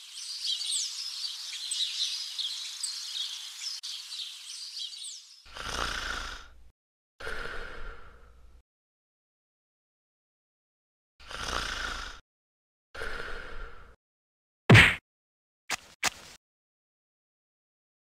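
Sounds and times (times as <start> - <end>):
songbirds chirping: 0.0 - 5.5.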